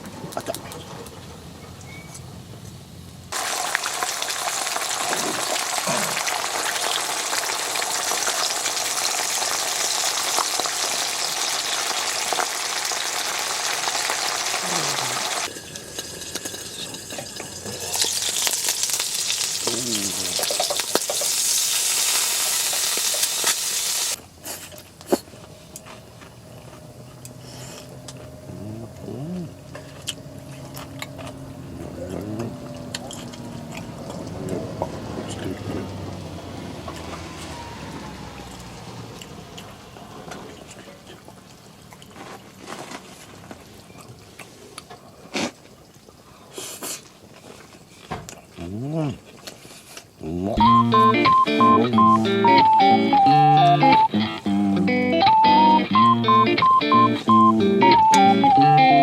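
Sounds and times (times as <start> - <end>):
food sizzling over campfire: 2.7 - 24.8, 41.2 - 48.0.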